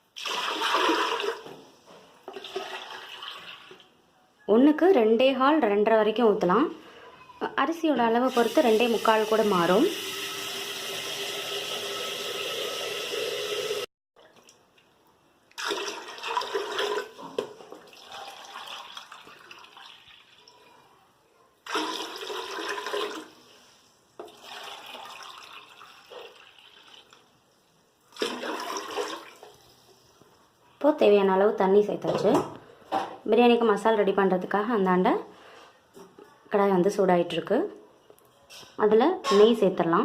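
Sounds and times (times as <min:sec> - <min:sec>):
water pouring into a pot: 0:00.0 - 0:01.6, 0:02.3 - 0:03.8, 0:08.3 - 0:14.6, 0:15.6 - 0:20.7, 0:21.6 - 0:30.0.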